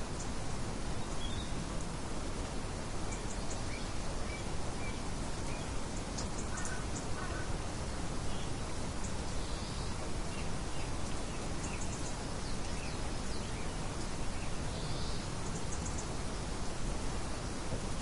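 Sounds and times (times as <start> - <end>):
light wind hissing: 0.0 - 18.0
faint bird chirps: 3.1 - 7.6, 8.3 - 13.8.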